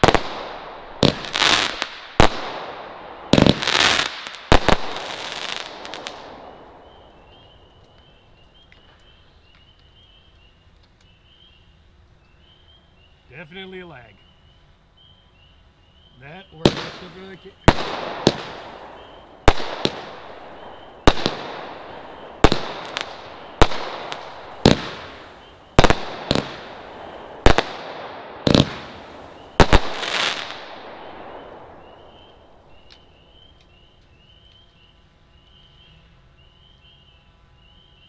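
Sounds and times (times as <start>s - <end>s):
fireworks bangs with echo: 0.0s - 9.0s, 16.2s - 33.6s.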